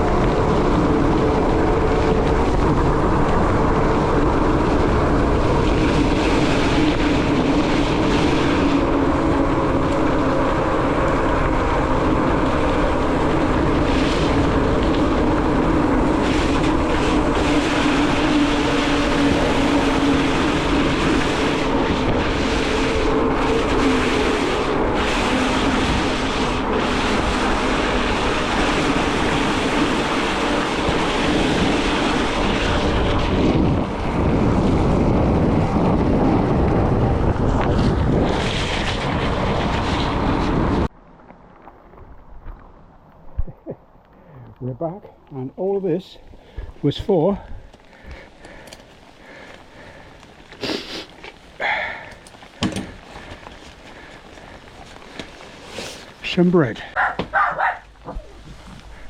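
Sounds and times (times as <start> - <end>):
bicycle tyre hiss on wet road: 0.0 - 40.9, 46.3 - 59.0
wind buffeting microphone: 0.0 - 41.0, 41.9 - 59.0
low hum: 0.0 - 45.6.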